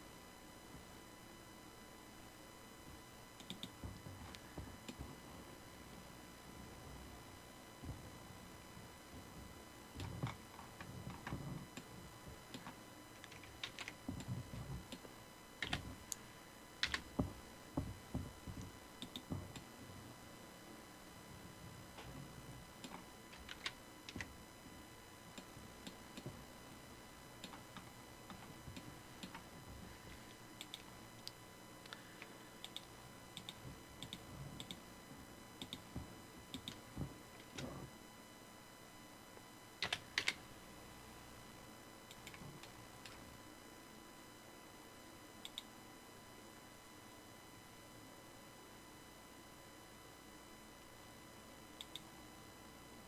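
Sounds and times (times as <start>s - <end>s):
keyboard keys tapping: 9.1s - 16.2s, 16.8s - 19.7s, 21.9s - 24.4s, 39.8s - 40.4s.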